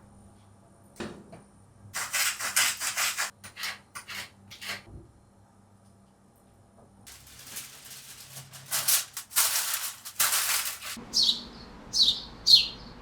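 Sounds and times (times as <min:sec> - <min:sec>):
hissing rustling noise: 0:07.1 - 0:11.0
bird chirping: 0:11.0 - 0:13.0.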